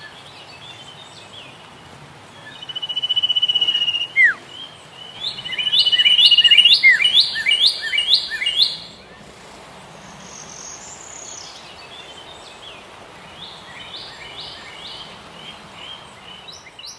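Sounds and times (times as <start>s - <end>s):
birds chirping: 0.0s - 16.9s
soft background hiss: 0.0s - 16.9s.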